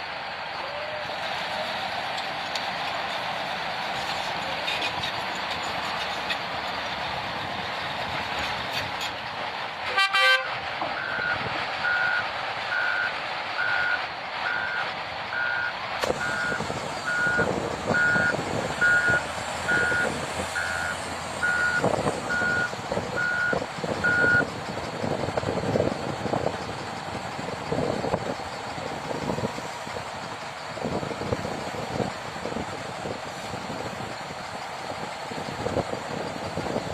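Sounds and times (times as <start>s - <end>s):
engine and site noise: 0.0s - 36.9s
reversing alarm beeping: 11.0s - 24.5s.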